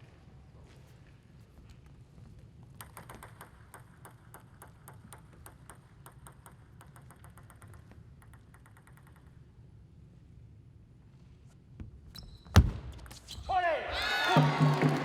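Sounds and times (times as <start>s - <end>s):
table tennis ball pings: 2.8s - 9.5s.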